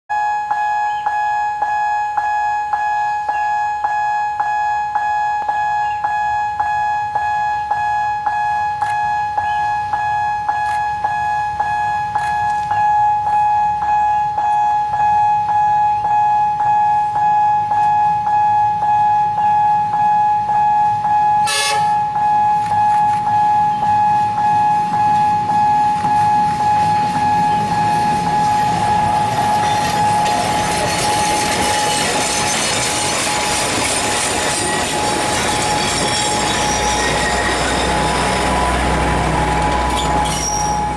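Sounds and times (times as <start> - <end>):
train rumbling: 19.8 - 40.9
train horn blast: 21.4 - 22.1
level crossing bell ringing: 23.3 - 40.9.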